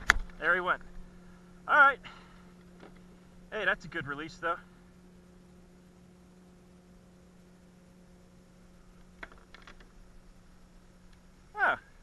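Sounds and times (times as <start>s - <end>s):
small clicks: 0.0s - 0.4s, 9.0s - 10.0s
faint steady hum: 0.0s - 12.0s.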